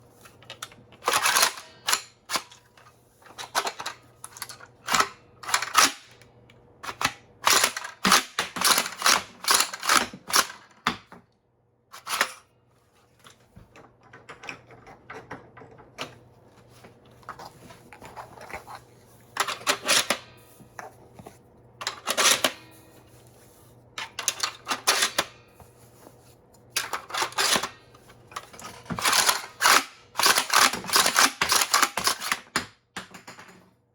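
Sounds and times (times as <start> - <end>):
plastic toy gun clacks and snaps: 6.9 - 11.1, 29.0 - 33.3.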